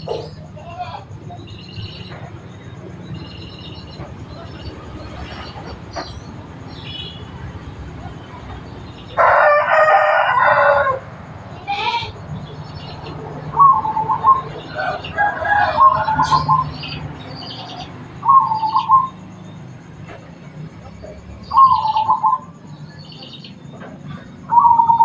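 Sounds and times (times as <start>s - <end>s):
small birds chirping: 0.0s - 9.3s, 11.2s - 25.0s
rooster crowing: 9.0s - 11.2s, 13.5s - 17.0s
dove cooing: 13.0s - 19.3s, 21.5s - 22.6s, 24.2s - 25.0s.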